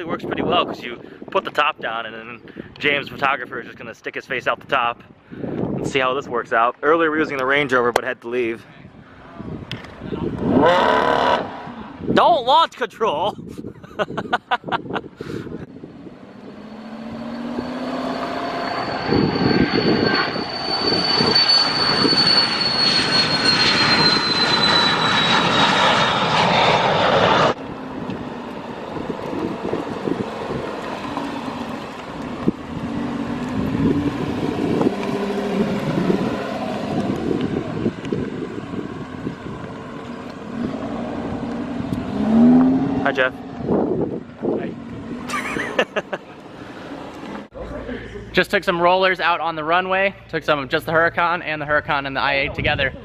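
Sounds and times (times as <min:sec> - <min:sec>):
aircraft engine whine: 0:00.0 - 0:01.4, 0:04.6 - 0:12.2, 0:13.4 - 0:53.0
vehicle rumble: 0:06.8 - 0:12.2, 0:13.5 - 0:53.0
rushing noise: 0:15.4 - 0:47.6.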